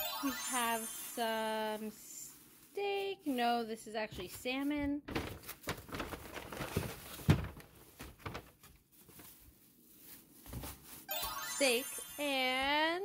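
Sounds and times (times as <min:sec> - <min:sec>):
packaging rustling: 0:02.4 - 0:11.1.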